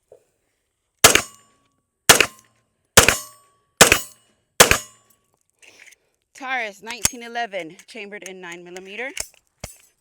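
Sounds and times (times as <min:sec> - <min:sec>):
pistol shots: 0:01.0 - 0:01.4, 0:02.1 - 0:02.4, 0:03.0 - 0:05.0.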